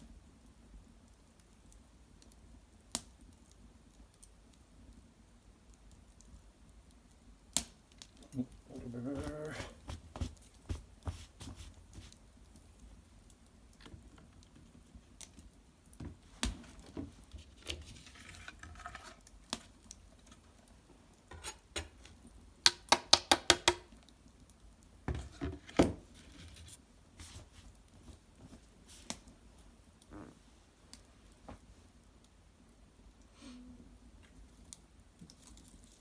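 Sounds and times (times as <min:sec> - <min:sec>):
fire crackling: 0:00.0 - 0:36.0
sharp pops from fire: 0:01.1 - 0:08.4, 0:09.2 - 0:17.4, 0:21.2 - 0:24.9, 0:26.8 - 0:30.1.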